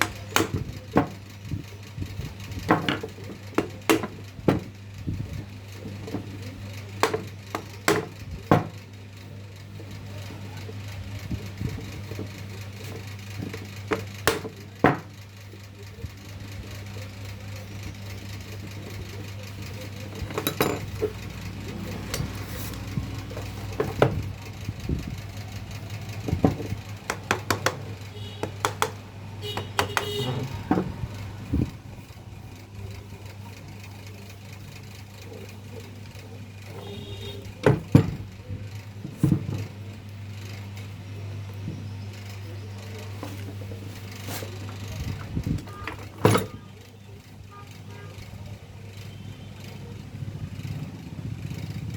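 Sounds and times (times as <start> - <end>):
electric fan motor humming: 0.0 - 51.9
sharp knocks: 28.5 - 31.0.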